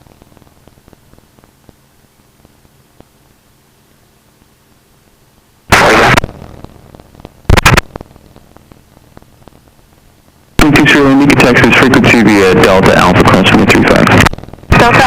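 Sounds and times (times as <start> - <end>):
faint background hiss: 0.0 - 15.0
radio squelch bursts: 5.7 - 6.3.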